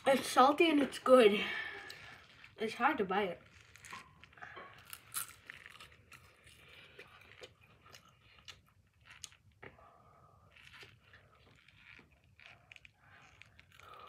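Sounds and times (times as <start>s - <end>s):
crunching potato chip: 3.4s - 9.8s, 10.4s - 14.0s.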